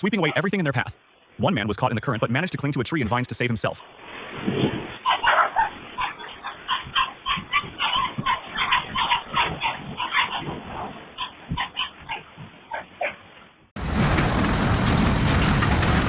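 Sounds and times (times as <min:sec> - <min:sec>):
dog barking rapidly: 0:00.1 - 0:00.6, 0:05.0 - 0:13.2.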